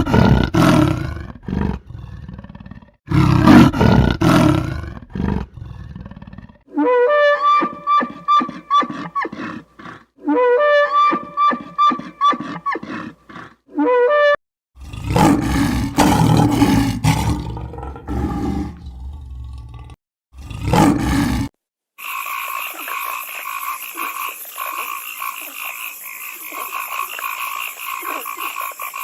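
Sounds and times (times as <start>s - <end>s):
animal roaring: 0.0s - 6.7s, 14.8s - 21.5s.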